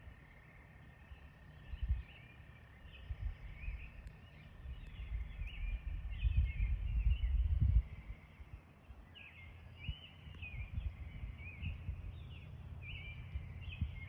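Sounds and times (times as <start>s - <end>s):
small birds chirping: 0.0s - 14.0s
low rumble: 1.0s - 8.6s.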